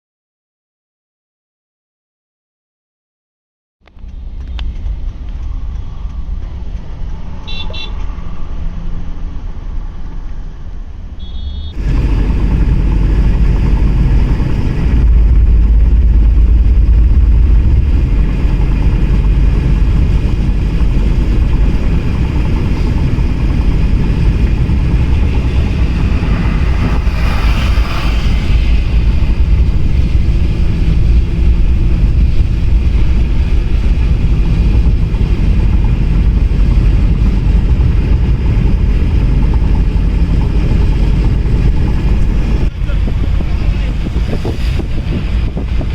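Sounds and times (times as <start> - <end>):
car road noise: 3.9 - 45.9
car horn toots: 7.4 - 8.0, 11.2 - 11.8.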